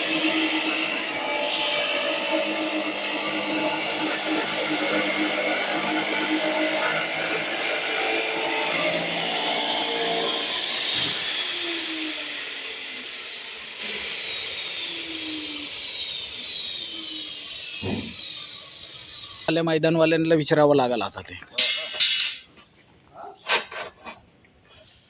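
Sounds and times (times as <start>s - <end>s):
power tool motor spinning down: 0.0s - 19.5s.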